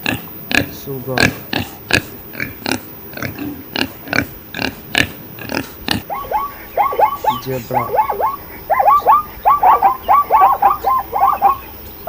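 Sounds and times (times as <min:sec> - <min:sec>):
pig grunting: 0:00.0 - 0:11.6
high squeaky animal calls: 0:05.5 - 0:11.8.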